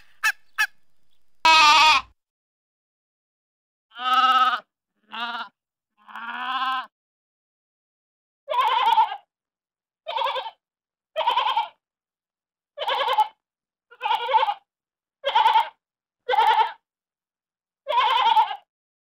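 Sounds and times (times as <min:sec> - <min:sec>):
sheep bleating: 0:01.5 - 0:02.1, 0:03.9 - 0:06.9, 0:08.5 - 0:09.3, 0:10.1 - 0:10.6, 0:11.2 - 0:11.8, 0:12.8 - 0:14.6, 0:15.2 - 0:16.8, 0:17.9 - 0:18.7.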